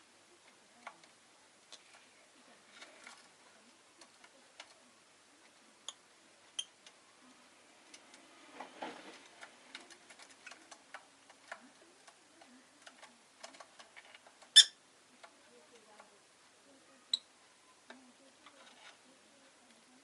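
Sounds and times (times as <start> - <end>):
bird clicking and tapping: 9.3 - 16.1.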